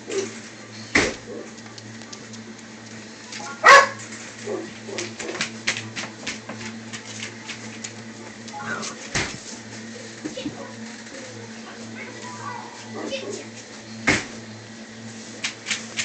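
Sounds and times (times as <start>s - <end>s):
puppy barking: 3.5s - 5.4s.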